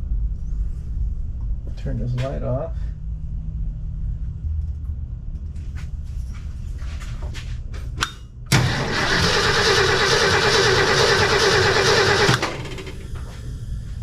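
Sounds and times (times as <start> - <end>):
starter motor cranking engine: 8.5 - 13.1.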